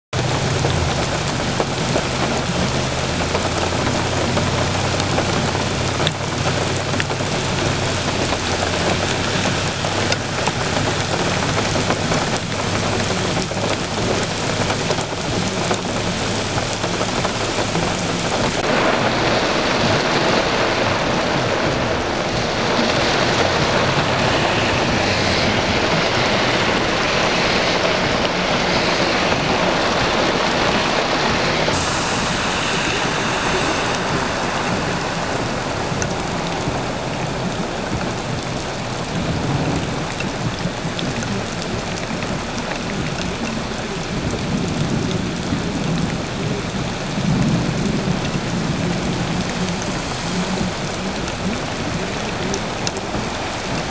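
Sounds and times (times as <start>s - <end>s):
heavy rain pouring: 0.1s - 53.9s.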